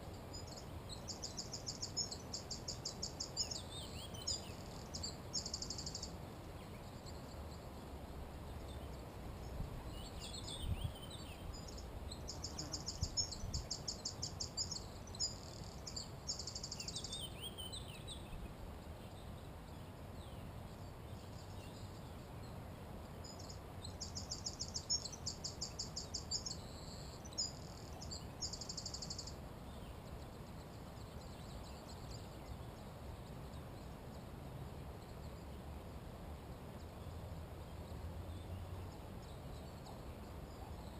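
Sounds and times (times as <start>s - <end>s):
birds calling faintly: 0.0s - 40.9s
low background noise: 0.0s - 40.9s.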